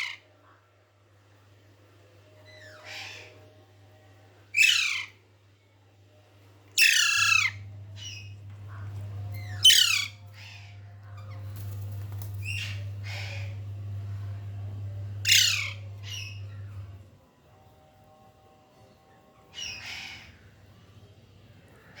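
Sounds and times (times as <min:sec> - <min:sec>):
parrot squawking: 0:00.0 - 0:00.2, 0:04.6 - 0:05.2, 0:06.8 - 0:11.4, 0:15.2 - 0:16.8
steady low hum: 0:00.0 - 0:22.0.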